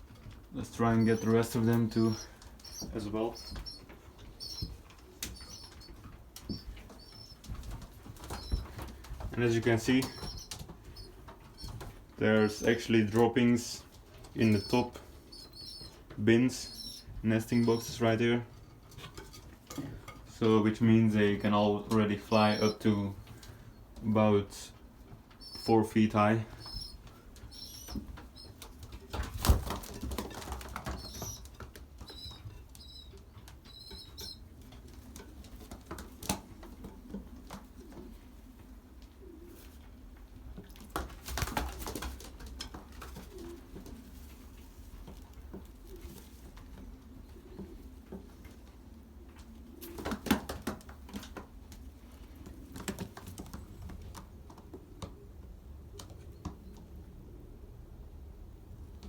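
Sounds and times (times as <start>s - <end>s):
pigeons cooing: 0.6s - 18.2s, 22.2s - 24.0s, 24.8s - 35.4s, 36.5s - 40.5s, 42.9s - 44.1s, 45.7s - 50.8s
pigeon wings flapping: 0.9s - 11.9s, 27.8s - 32.2s, 40.8s - 44.1s, 49.8s - 51.8s.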